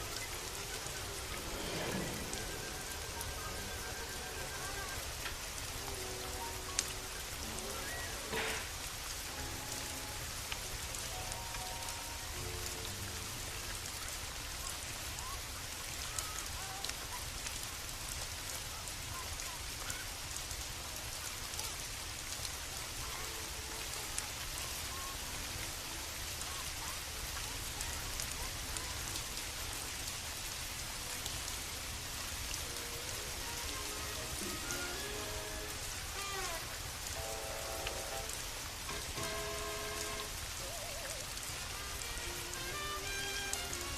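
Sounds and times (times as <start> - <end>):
steady rain falling: 0.0 - 43.9.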